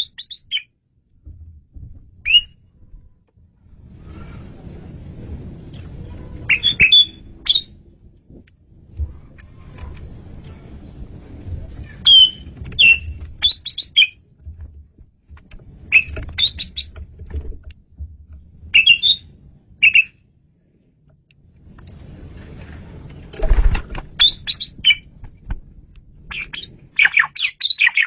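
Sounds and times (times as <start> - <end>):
starling singing squeaky notes: 0.0 - 0.7, 2.2 - 2.6, 5.8 - 7.7, 11.9 - 14.2, 15.9 - 17.0, 18.7 - 20.1, 24.2 - 25.1
low background rumble: 0.0 - 27.6.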